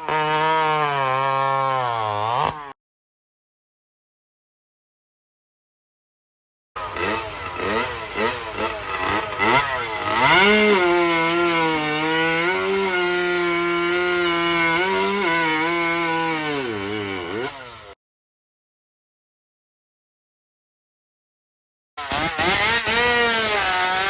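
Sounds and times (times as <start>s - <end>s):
chainsaw engine revving: 0.0s - 2.8s, 6.8s - 18.0s, 22.0s - 24.0s.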